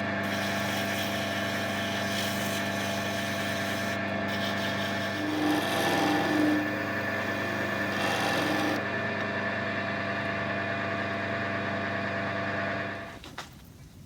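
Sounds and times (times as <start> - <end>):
tool hissing on spinning wood: 0.0 - 8.8
lathe motor hum: 0.0 - 13.2.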